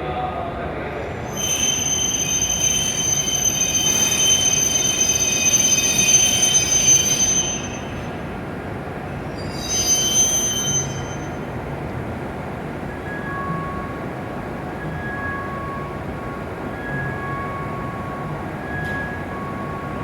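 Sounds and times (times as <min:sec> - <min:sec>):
train brakes squealing: 0:00.9 - 0:20.0.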